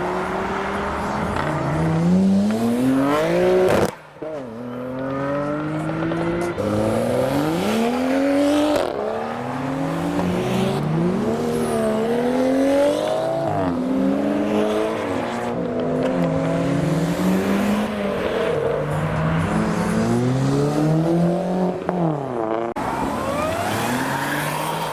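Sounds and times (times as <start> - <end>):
car engine revving hard: 5.2 - 15.4.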